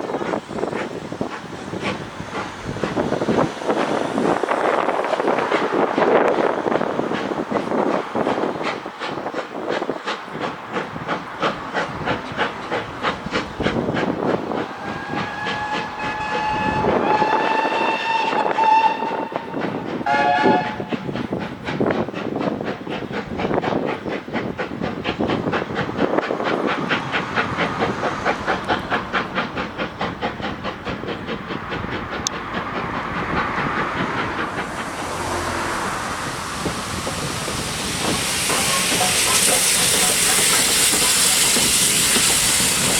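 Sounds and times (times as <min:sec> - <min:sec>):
train running past: 0:00.0 - 0:42.9
train whistle: 0:14.7 - 0:20.9
hiss: 0:20.8 - 0:42.9.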